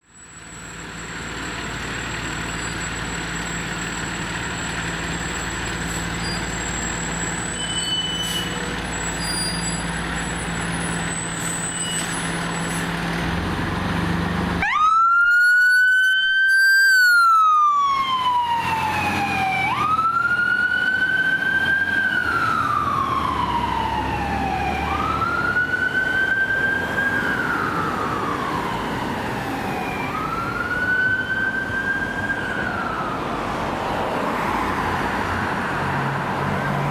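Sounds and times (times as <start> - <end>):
diesel engine running: 8.6 - 14.7
siren wailing: 14.6 - 35.7.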